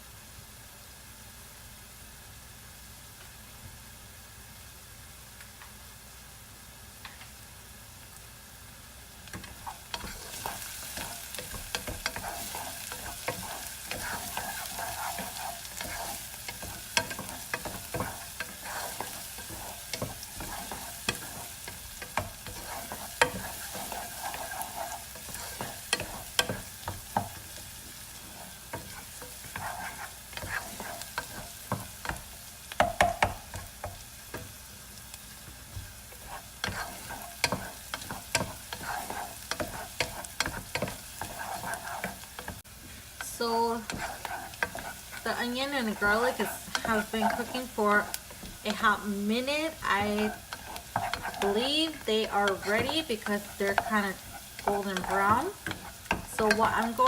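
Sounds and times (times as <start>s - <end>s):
onion and garlic sizzling in a pan: 0.0s - 57.0s
utensil scraping a pan: 9.4s - 34.5s, 35.7s - 57.0s
utensil knocking on pan: 32.8s - 34.5s.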